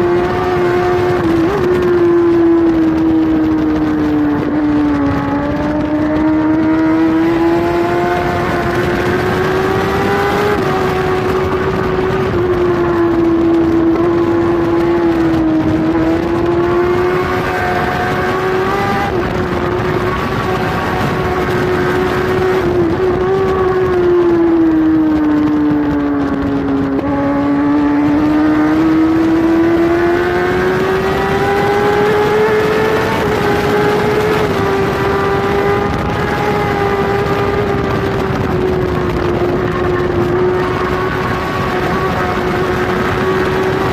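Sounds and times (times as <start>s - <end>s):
motorcycle engine at high revs: 0.0s - 43.9s
wind rushing: 0.0s - 43.9s.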